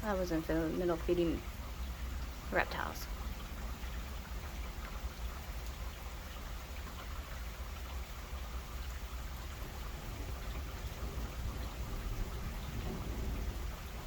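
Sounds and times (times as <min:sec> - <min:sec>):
rain falling: 0:00.0 - 0:14.0
low thunder rumble: 0:09.0 - 0:14.0.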